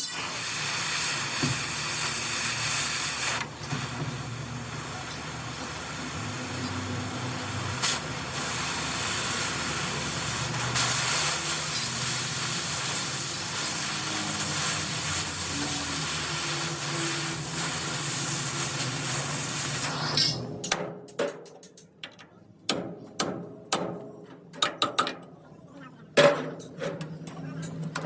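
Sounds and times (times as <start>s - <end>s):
steady hissing: 0.0s - 20.5s
low mechanical hum: 0.0s - 28.0s.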